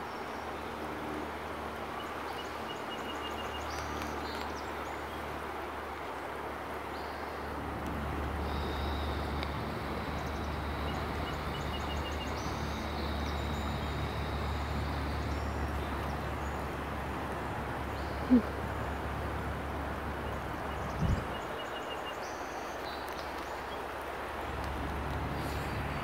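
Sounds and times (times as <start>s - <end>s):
low rumble and hiss: 0.3s - 21.6s
faint high bird calls: 8.4s - 16.2s.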